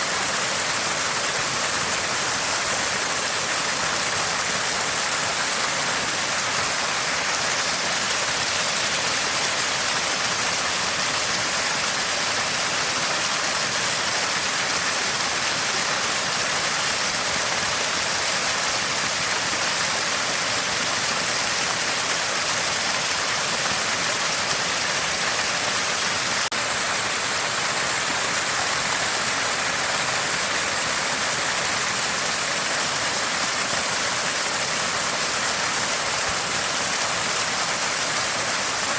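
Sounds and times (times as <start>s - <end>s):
spring water gushing and gurgling: 0.0s - 38.9s.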